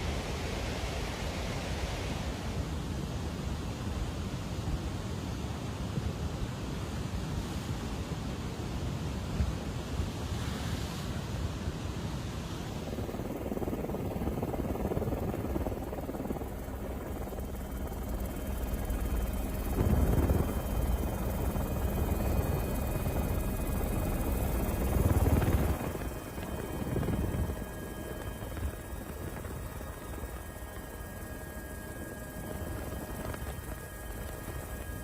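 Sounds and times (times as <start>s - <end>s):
aircraft rotor noise: 12.1s - 35.0s.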